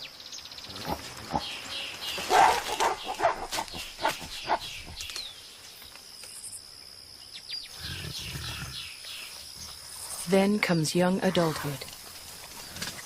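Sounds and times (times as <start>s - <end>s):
gorillas calling: 0.7s - 5.2s
gorilla barking calls: 2.2s - 5.0s.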